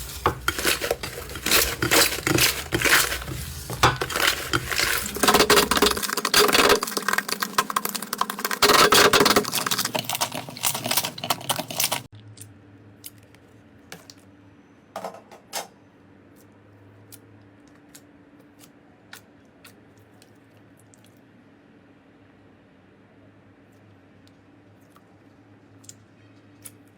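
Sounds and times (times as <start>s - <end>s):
slime crackling and popping: 0.0s - 12.1s
slime squishing: 0.0s - 12.1s.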